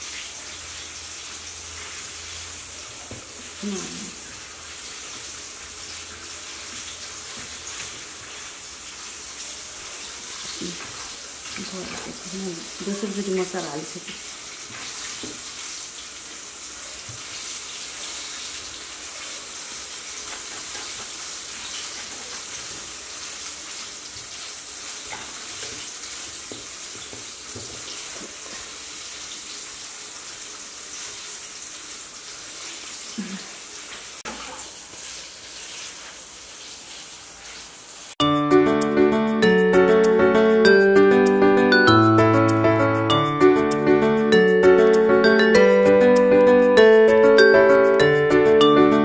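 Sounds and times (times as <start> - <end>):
chicken frying in hot oil: 0.0 - 38.2.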